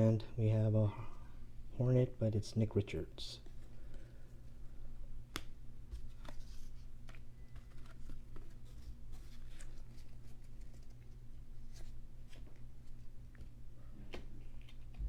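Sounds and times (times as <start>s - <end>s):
steady low hum: 0.0s - 15.0s
cards clicking and rustling: 5.3s - 15.0s.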